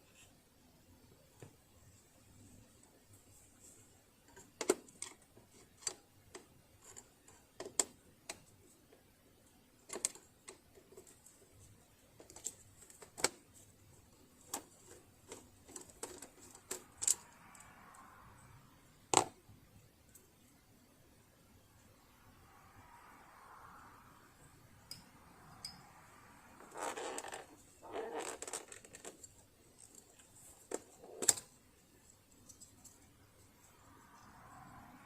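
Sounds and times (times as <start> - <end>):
soft rustle: 1.3 - 4.4.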